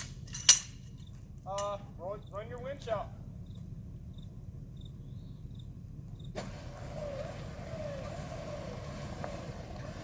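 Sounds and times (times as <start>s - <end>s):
winch whirring with falling whine: 6.4s - 10.0s.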